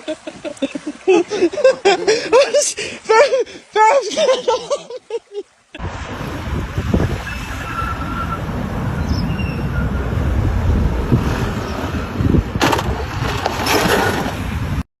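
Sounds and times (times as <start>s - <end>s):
moving vehicle rumble: 5.8s - 14.8s
rushes of noise: 5.8s - 14.8s
wind buffeting microphone: 5.8s - 14.8s.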